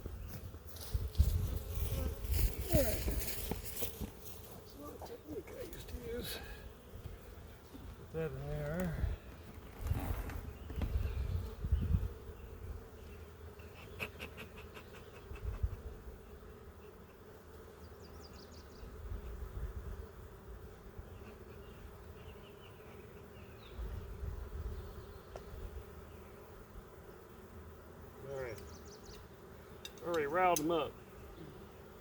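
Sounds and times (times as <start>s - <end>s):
honeybees buzzing: 0.0s - 32.0s.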